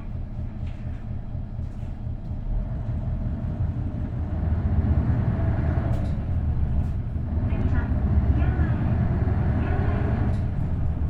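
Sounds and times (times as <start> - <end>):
bus diesel engine: 0.0 - 11.0
road noise: 2.5 - 11.0.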